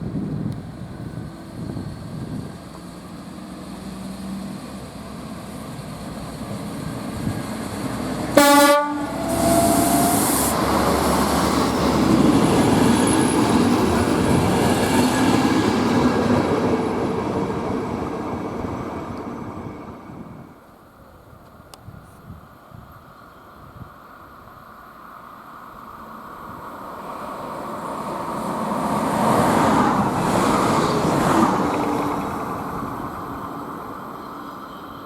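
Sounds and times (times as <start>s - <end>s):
train passing: 0.0s - 21.7s, 22.5s - 35.0s
train horn blast: 8.3s - 10.4s.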